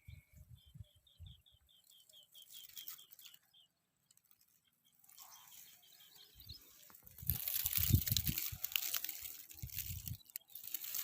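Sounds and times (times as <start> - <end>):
faint bird chirps: 0.0 - 7.9.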